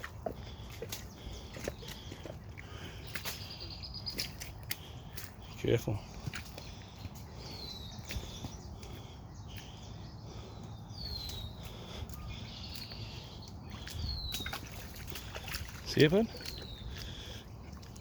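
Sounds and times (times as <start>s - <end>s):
songbird whistling call: 10.9s - 14.7s.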